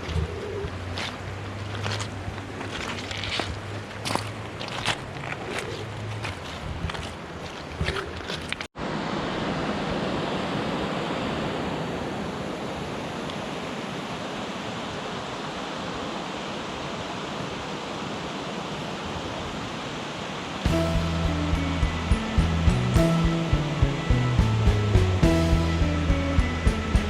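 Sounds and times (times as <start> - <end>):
river rushing: 8.7 - 27.0.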